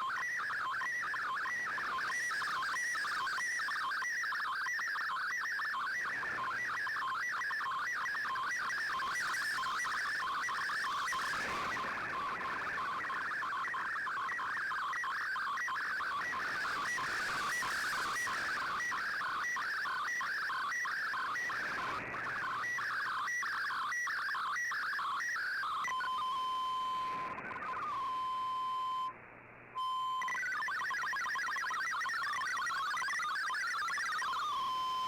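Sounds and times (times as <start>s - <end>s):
steady radio tone: 21.2s - 29.1s, 29.8s - 35.0s
warbling digital data tones: 29.8s - 35.0s.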